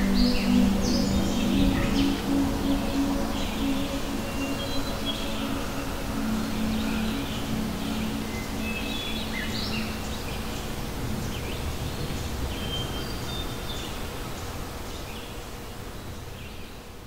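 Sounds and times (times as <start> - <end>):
low held tone: 0.0 - 10.7
background hiss: 0.0 - 17.0.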